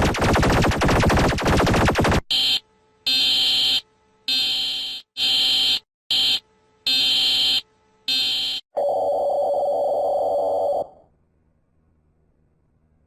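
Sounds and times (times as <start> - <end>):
lower steady alarm tone: 2.3 - 10.8.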